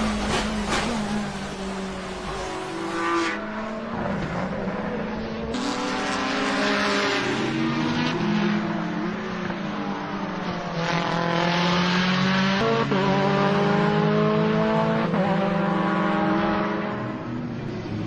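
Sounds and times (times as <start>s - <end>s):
car engine accelerating hard: 0.0s - 18.0s.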